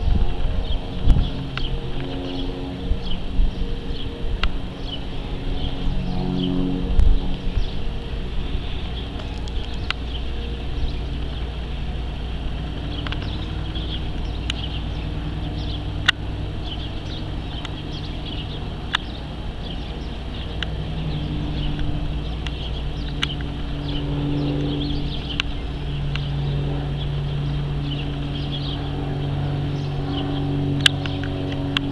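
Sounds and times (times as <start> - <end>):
vehicle engine running: 0.0 - 31.9
sharp ticks: 12.8 - 26.4, 30.8 - 31.9.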